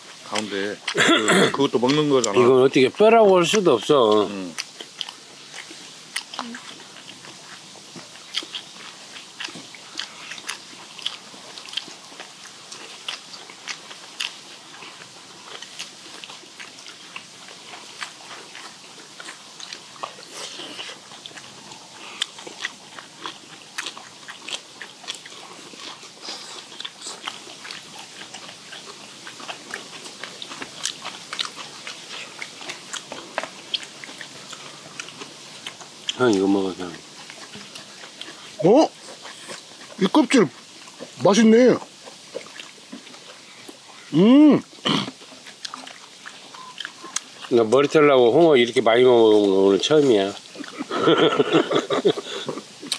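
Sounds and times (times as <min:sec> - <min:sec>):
people chewing and crunching: 0:00.0 - 0:52.9
wet mouth clicks: 0:04.1 - 0:14.4, 0:41.8 - 0:47.5.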